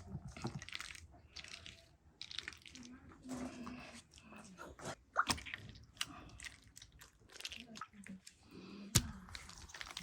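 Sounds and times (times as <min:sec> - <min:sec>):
wet squishing of food: 0:00.0 - 0:10.0.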